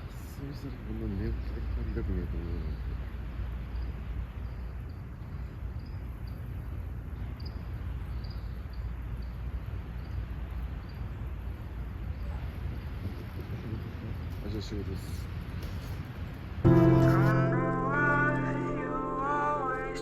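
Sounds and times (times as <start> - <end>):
steady low rumble: 16.6 - 20.0.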